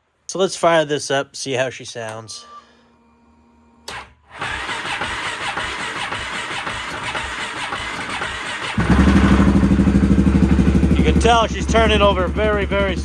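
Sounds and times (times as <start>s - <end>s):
engine cranking on starter: 3.9s - 13.0s.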